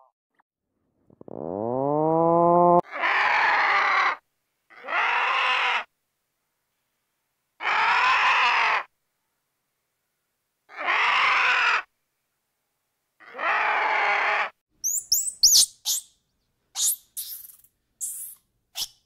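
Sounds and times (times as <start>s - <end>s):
vulture harsh raspy call: 2.8s - 5.9s, 7.6s - 8.9s, 10.7s - 11.9s, 13.2s - 16.1s.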